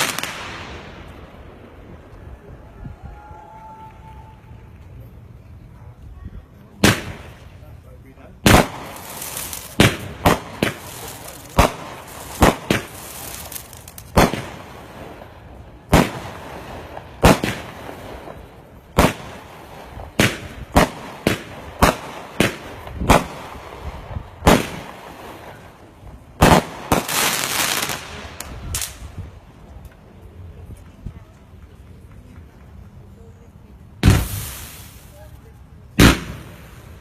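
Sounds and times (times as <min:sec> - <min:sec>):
firework bangs: 0:00.0 - 0:02.7, 0:06.8 - 0:29.4, 0:33.9 - 0:37.0
dense firework crackling: 0:00.0 - 0:05.6, 0:06.7 - 0:29.8, 0:30.4 - 0:37.0.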